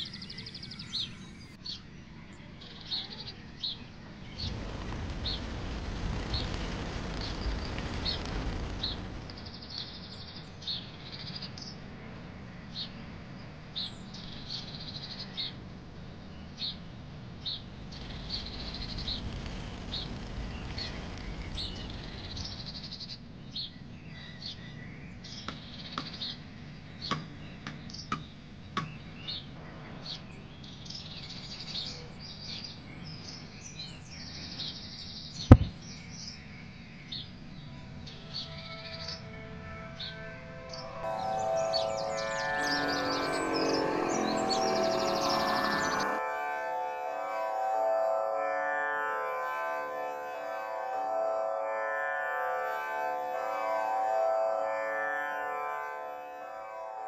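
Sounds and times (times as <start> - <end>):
low street hum: 0.0 - 14.4, 15.1 - 25.3, 39.2 - 46.9
small birds chirping: 16.4 - 29.4
sharp knock: 35.5 - 35.8.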